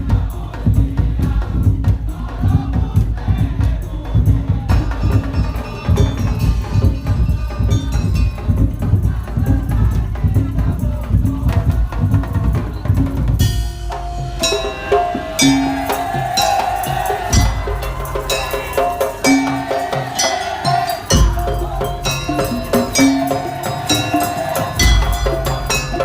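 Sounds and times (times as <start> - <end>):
heavy drumming: 0.0 - 26.0
light percussion: 0.0 - 26.0
melody line: 13.4 - 15.8.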